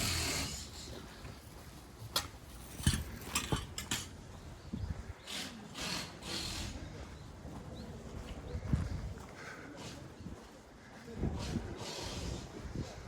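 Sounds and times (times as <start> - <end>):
footsteps scuffing on path: 7.0 - 11.6.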